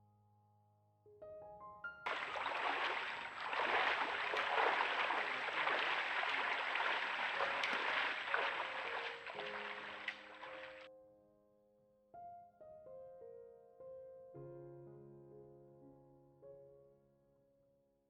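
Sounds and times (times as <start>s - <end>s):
faint music: 2.1s - 10.9s
stream water running: 2.1s - 10.9s.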